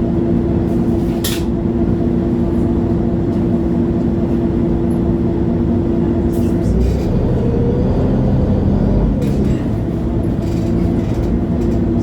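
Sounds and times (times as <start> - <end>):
bus diesel engine running: 1.7 - 12.0.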